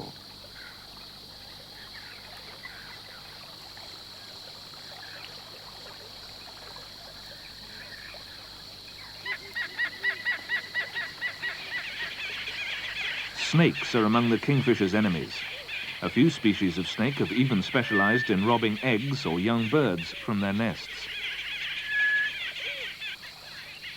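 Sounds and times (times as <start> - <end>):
steady high hiss: 0.0 - 23.9
bird calling harsh repeated notes: 9.9 - 23.2.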